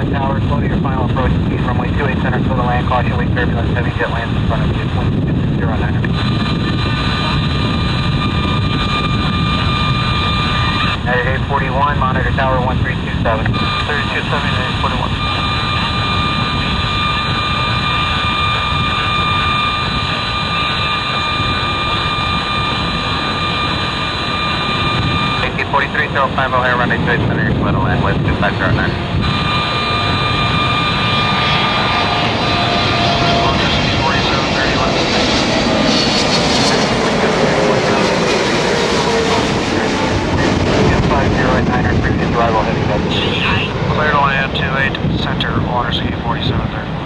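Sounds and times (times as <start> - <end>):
high engine whine: 0.0 - 47.0
jet engine roar: 0.0 - 47.0.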